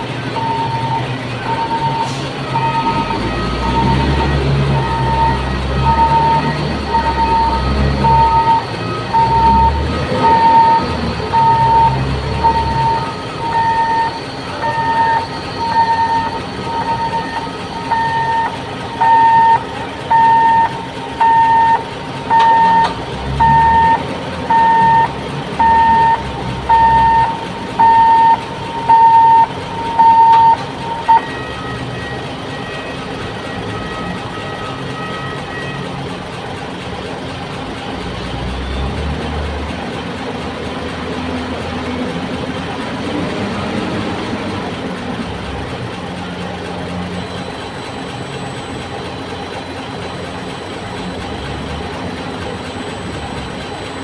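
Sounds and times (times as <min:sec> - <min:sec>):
crane warning alarm beeping: 0:00.0 - 0:36.0
diesel engine running: 0:00.0 - 0:54.0.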